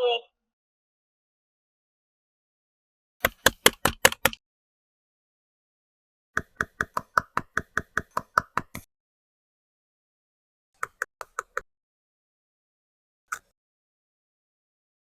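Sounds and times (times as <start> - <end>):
taps on plastic toy pieces: 3.2 - 4.4, 6.4 - 8.9.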